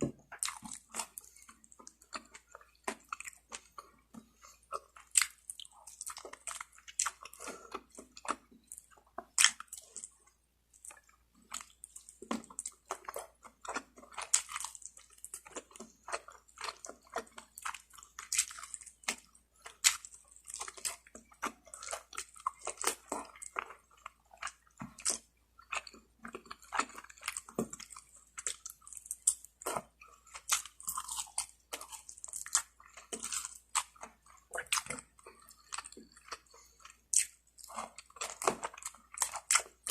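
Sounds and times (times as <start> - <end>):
wet chewing and biting: 0.0 - 39.9
crisp skin crunching: 11.6 - 36.5.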